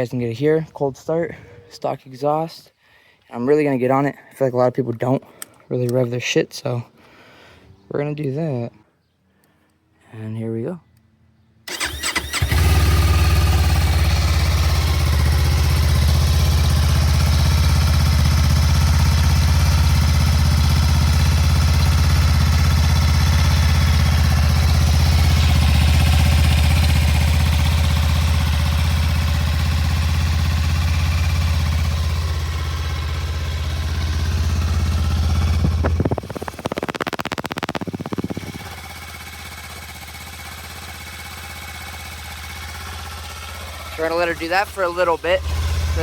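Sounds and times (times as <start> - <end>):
motorcycle engine starting and idling: 11.7 - 46.0.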